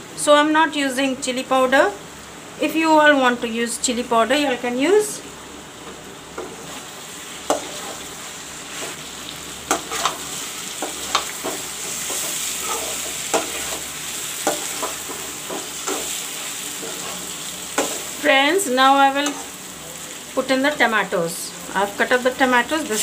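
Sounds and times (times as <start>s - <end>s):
chicken sizzling in hot oil: 5.0s - 23.0s
metal spatula knocking and scraping pan: 10.8s - 13.8s.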